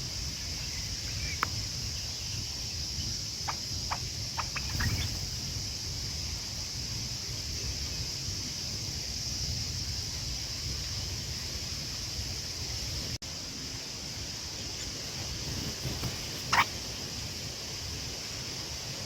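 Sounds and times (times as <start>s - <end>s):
high insect drone: 0.0s - 19.0s
wind rumbling on microphone: 0.0s - 19.0s.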